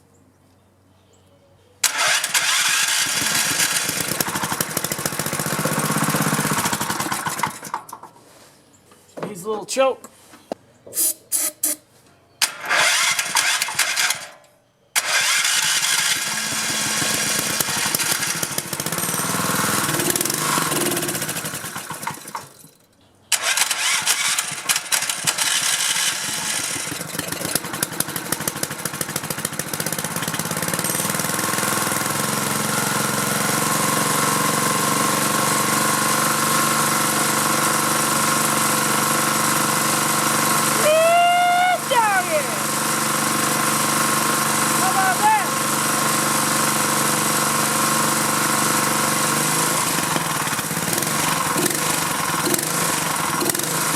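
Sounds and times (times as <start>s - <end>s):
small engine starting and running: 1.8s - 8.2s, 12.4s - 53.9s.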